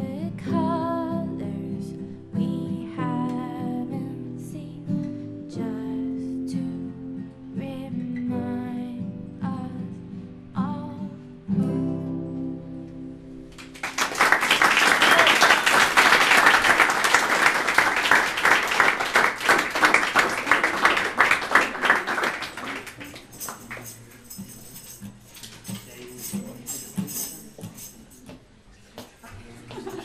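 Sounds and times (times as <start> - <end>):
acoustic guitar strumming: 0.0 - 13.8
audience applauding: 13.6 - 24.1
tambourine jingling: 21.7 - 28.3.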